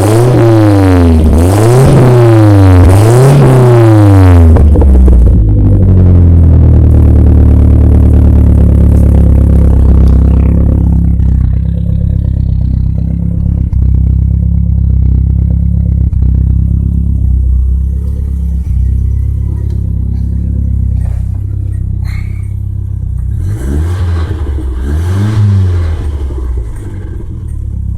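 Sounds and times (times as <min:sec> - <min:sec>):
car engine revs: 0:00.0 - 0:27.9
car exhaust rumbling: 0:00.0 - 0:27.9.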